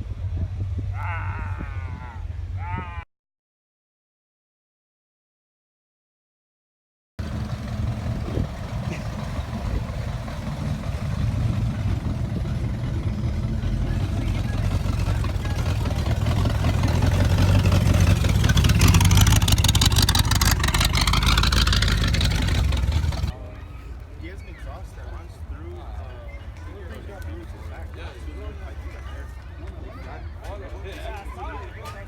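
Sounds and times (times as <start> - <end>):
vehicle passing by: 7.2 - 23.4
engine rumbling: 7.2 - 24.2.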